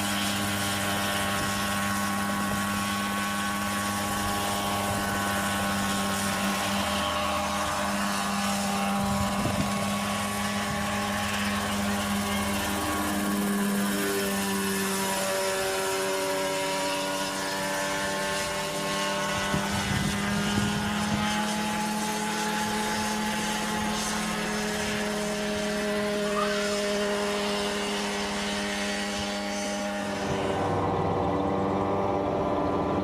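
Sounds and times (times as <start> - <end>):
turboprop aircraft drone: 0.0 - 33.0.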